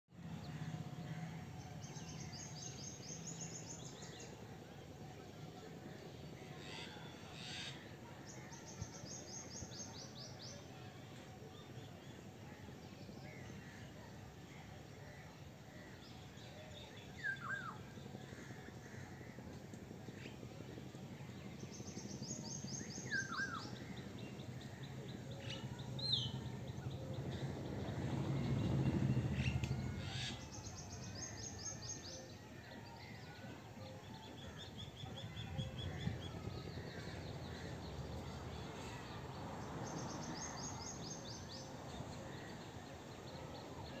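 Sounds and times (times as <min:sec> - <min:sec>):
low background noise: 0:00.2 - 0:44.0
birds chirping and singing: 0:21.7 - 0:44.0.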